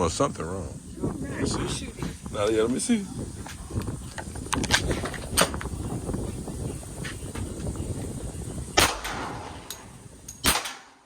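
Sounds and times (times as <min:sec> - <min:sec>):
pistol gunshot with echo: 0:08.8 - 0:11.0.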